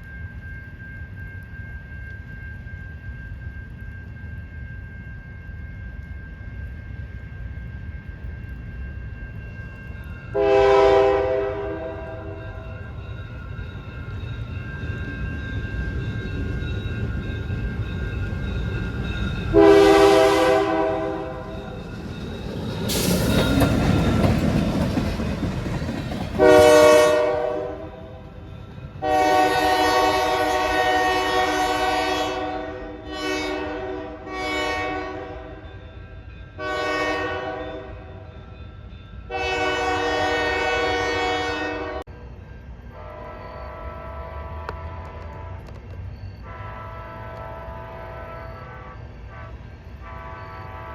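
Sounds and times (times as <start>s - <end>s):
train rumble: 0.0s - 50.9s
locomotive air horn blasts: 10.4s - 12.4s, 19.5s - 21.5s, 26.4s - 28.2s, 29.0s - 35.6s, 36.6s - 38.1s, 39.3s - 42.1s, 43.0s - 45.6s, 46.4s - 50.9s.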